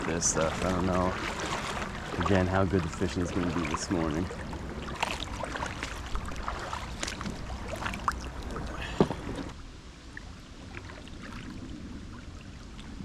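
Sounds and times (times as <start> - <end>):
river flowing: 0.0 - 9.6
water sloshing underfoot: 0.0 - 9.6, 10.2 - 13.0.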